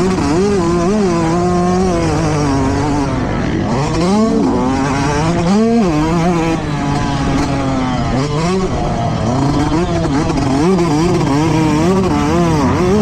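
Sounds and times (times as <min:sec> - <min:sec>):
motocross bike engine revving: 0:00.0 - 0:13.0.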